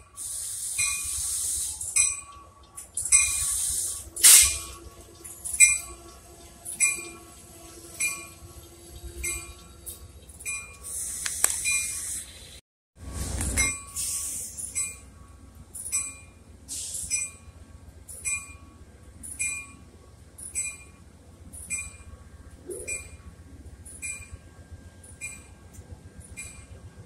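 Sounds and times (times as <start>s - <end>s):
metallic clinks from wheels: 15.7s - 16.4s
short hiss: 16.7s - 17.1s.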